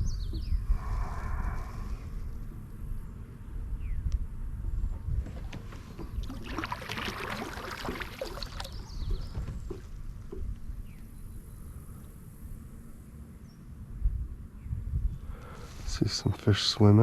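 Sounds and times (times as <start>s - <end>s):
paddle dipping in water: 5.3s - 11.0s
water pouring off paddle: 5.4s - 10.4s.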